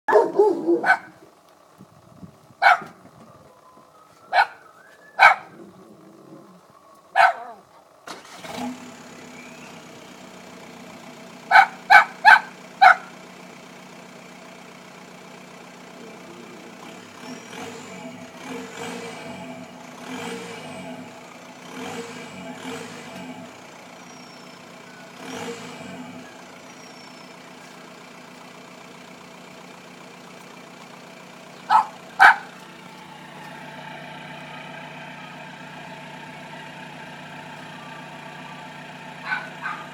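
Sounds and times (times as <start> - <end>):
dog barking: 0.1 - 1.2, 2.6 - 3.0, 4.3 - 4.6, 5.2 - 5.6, 7.1 - 7.6, 11.5 - 13.1, 31.7 - 32.5, 39.2 - 39.9
car engine starting and idling: 0.1 - 39.9.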